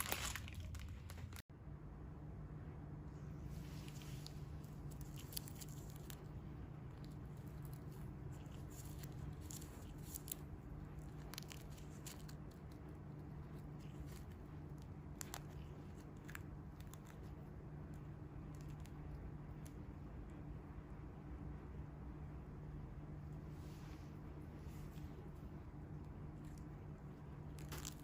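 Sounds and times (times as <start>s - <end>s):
plastic packaging crackling: 0.0s - 1.4s, 3.8s - 17.4s
steady low hum: 0.0s - 28.0s.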